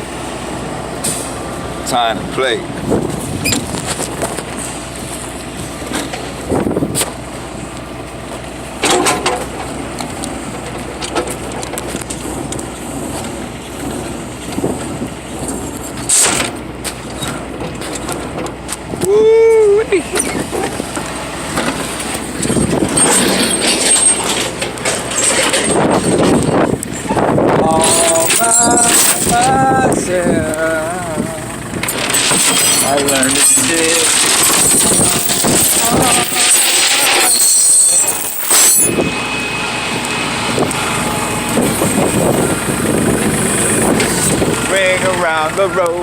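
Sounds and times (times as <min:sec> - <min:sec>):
excavator engine humming: 0:00.0 - 0:46.0
rattling and knocking: 0:20.4 - 0:26.8, 0:27.7 - 0:29.8, 0:31.8 - 0:39.0.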